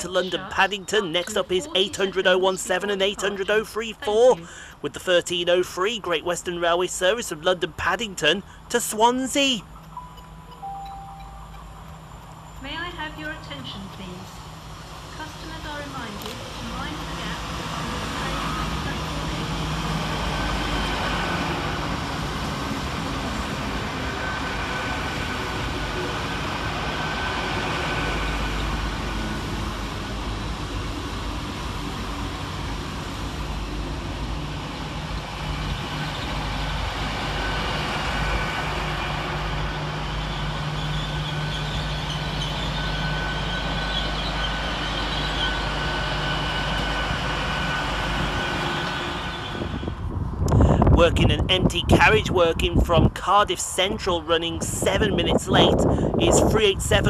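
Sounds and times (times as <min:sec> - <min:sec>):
train hum with high whine: 0:00.0 - 0:57.0
train wheels rumbling: 0:00.0 - 0:57.0.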